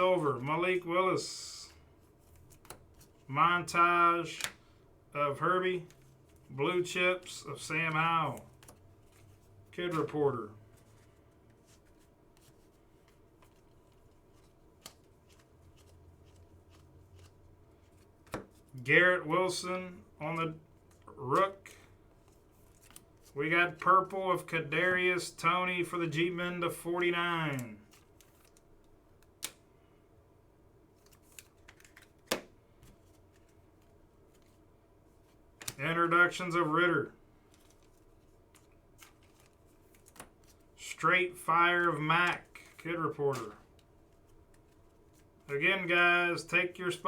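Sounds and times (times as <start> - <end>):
trading cards flipping: 2.2 - 3.2, 5.8 - 18.8, 20.8 - 24.1, 27.5 - 29.6, 30.9 - 34.6, 35.2 - 35.8, 37.4 - 40.7, 41.8 - 45.6.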